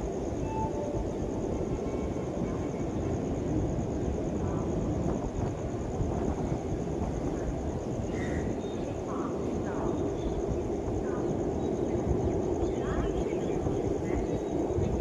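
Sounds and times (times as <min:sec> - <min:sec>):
train rumbling past: 0:00.0 - 0:10.2.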